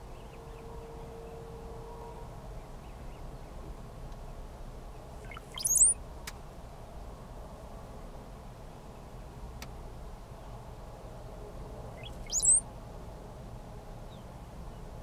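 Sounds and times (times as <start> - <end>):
cowbird song gurgling and squealing: 5.2 - 6.0, 12.0 - 12.6.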